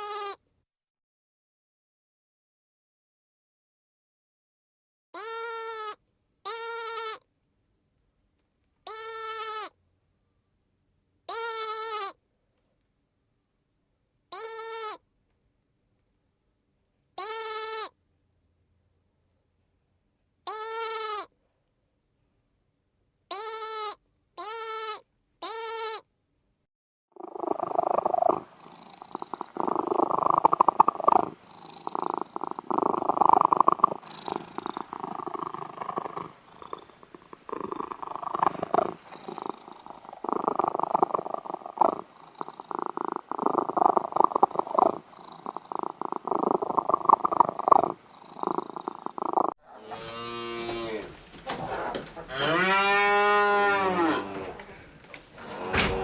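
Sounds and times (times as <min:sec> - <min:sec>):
short bleats: 0:00.0 - 0:00.4, 0:05.2 - 0:07.3, 0:08.8 - 0:09.8, 0:11.3 - 0:12.2, 0:14.3 - 0:15.0, 0:17.2 - 0:18.0, 0:20.5 - 0:21.3, 0:23.3 - 0:26.1, 0:49.7 - 0:51.1
cat purring: 0:27.2 - 0:49.6.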